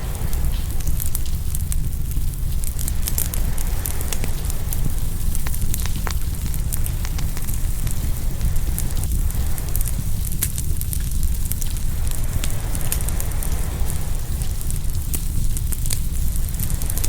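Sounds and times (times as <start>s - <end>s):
waves on the shore: 0.0s - 1.3s, 2.6s - 10.0s, 11.8s - 15.4s
wood fire crackling: 0.0s - 17.0s.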